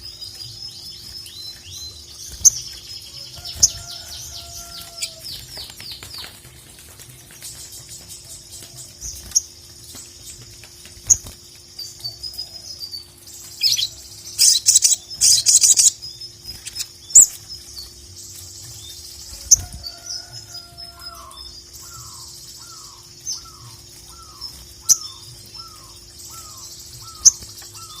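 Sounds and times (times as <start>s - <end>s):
bird song with high chirps: 0.0s - 28.0s
bird loud chattering: 21.2s - 28.0s.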